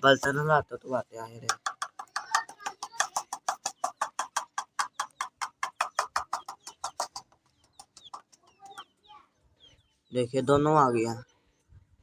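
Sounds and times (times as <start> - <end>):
metal utensil tapped rapidly: 1.3 - 8.6.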